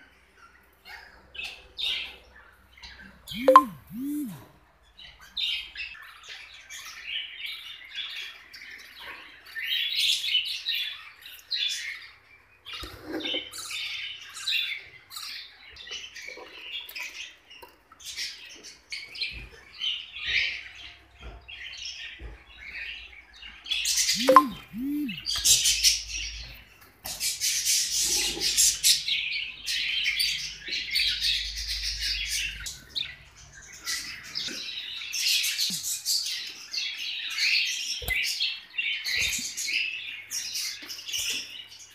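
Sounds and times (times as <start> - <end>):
lovebirds chirping: 24.2 - 25.2.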